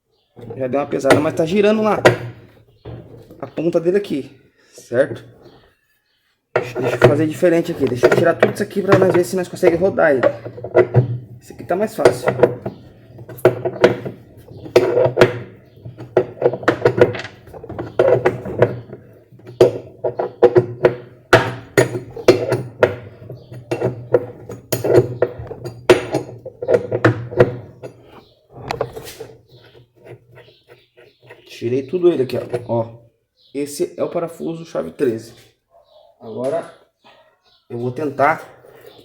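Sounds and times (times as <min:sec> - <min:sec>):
metal tool clicking and knocking: 0:06.6 - 0:30.6.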